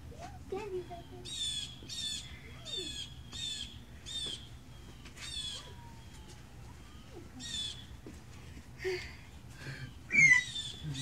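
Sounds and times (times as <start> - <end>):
bird harsh calls: 9.9 - 11.0.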